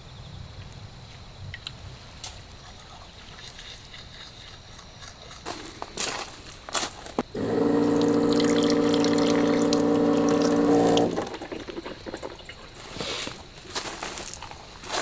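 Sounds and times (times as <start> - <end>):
small electric motor humming: 7.3 - 11.4.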